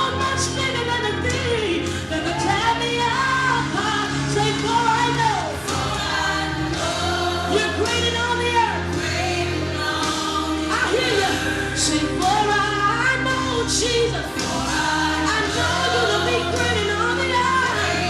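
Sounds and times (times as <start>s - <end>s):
band holding sustained chords: 0.0s - 18.0s
choir singing: 2.1s - 18.0s.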